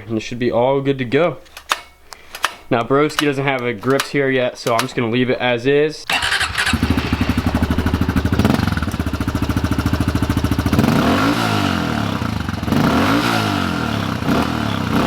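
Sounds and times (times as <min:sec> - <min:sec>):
motorbike engine idling and revving: 0:06.1 - 0:15.0.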